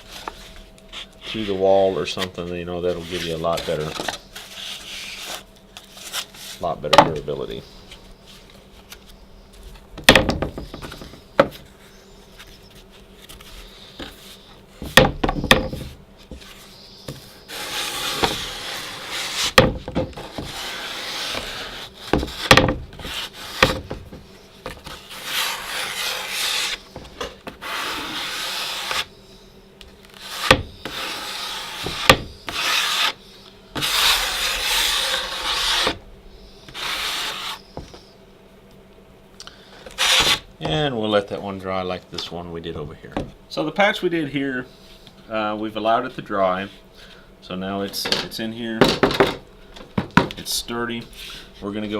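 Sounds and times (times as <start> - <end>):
drywall knife scraping compound: 2.9 - 5.4, 17.5 - 19.6, 20.2 - 23.9, 24.8 - 26.9, 27.5 - 29.1, 30.1 - 33.2, 33.8 - 36.0, 36.7 - 37.8, 39.9 - 40.5
sharp knocks: 10.0 - 11.6.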